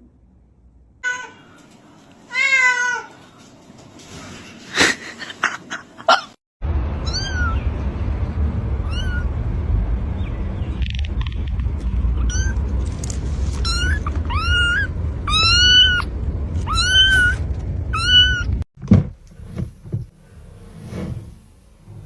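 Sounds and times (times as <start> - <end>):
steady low rumble: 6.6 - 22.0
cat meowing: 13.6 - 18.6.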